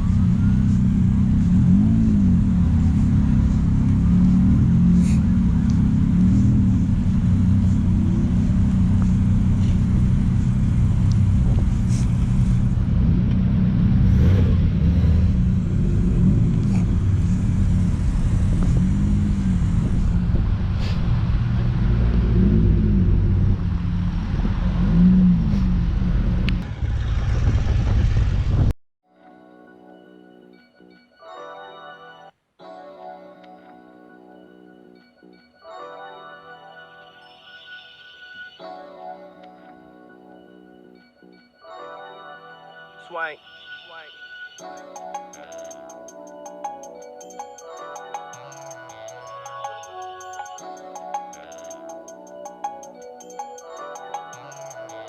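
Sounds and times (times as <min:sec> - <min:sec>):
car engines revving: 0:00.0 - 0:28.7.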